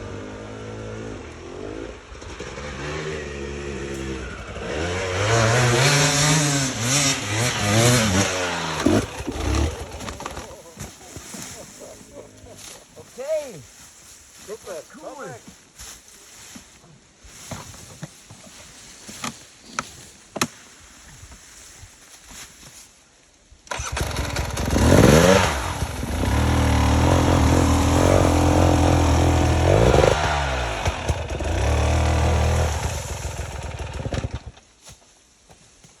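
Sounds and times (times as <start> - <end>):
dirt bike engine revving: 0.0 - 10.6, 23.7 - 34.6.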